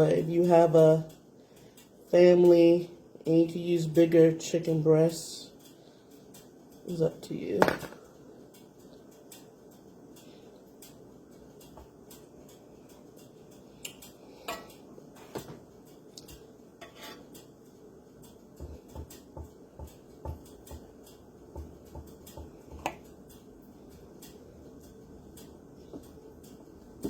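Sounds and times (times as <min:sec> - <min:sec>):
knife and utensils clinking on dishes: 0:16.8 - 0:17.3.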